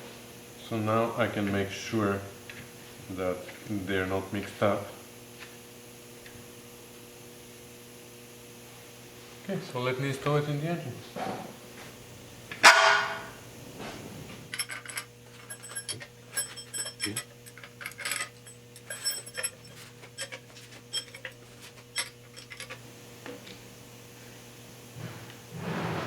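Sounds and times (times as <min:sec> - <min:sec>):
faint steady hum: 0:00.0 - 0:25.7
light metallic clicks and clinks: 0:14.5 - 0:22.8.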